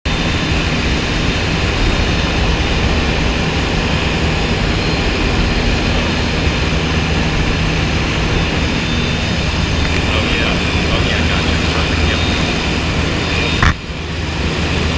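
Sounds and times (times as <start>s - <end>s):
aircraft engine running: 0.0s - 14.9s.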